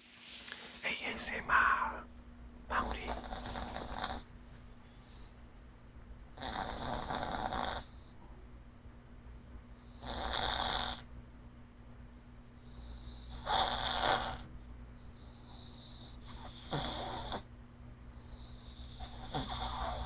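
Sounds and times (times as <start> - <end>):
dog snoring: 2.7 - 4.3, 6.3 - 8.2, 9.7 - 11.1, 12.4 - 17.5, 18.2 - 20.0.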